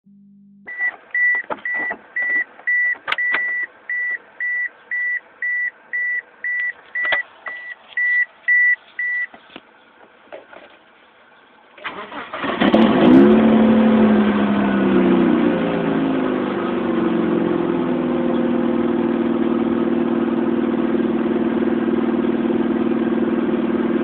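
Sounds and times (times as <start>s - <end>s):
car warning chime beeping: 0.6s - 9.3s.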